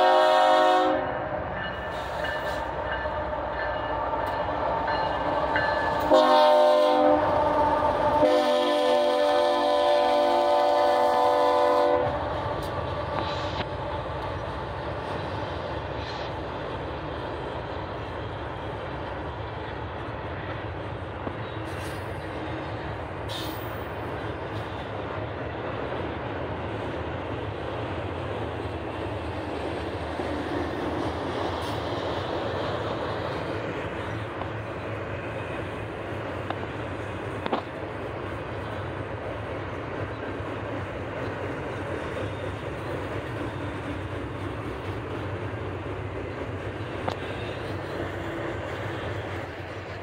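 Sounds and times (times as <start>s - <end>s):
locomotive air horn chord: 0.0s - 1.1s, 6.0s - 12.2s
train cars rolling past: 0.0s - 50.0s.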